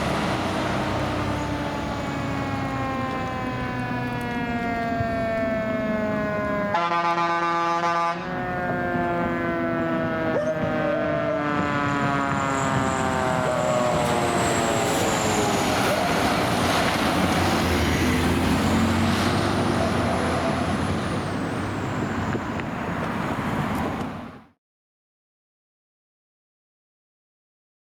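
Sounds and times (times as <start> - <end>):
diesel engine running: 0.0 - 6.7, 8.4 - 22.6
road noise: 0.0 - 24.6
mechanical siren winding down: 0.7 - 7.1, 7.9 - 22.2.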